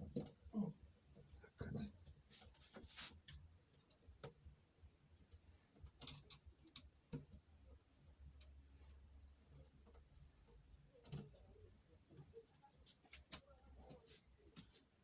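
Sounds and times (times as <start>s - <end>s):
small metal parts and tools clicking: 5.8s - 6.9s.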